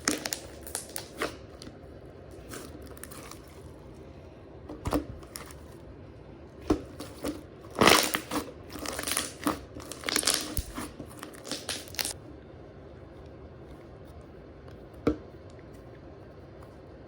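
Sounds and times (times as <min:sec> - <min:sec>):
slime crackling and popping: 0:00.0 - 0:01.6, 0:07.7 - 0:12.2.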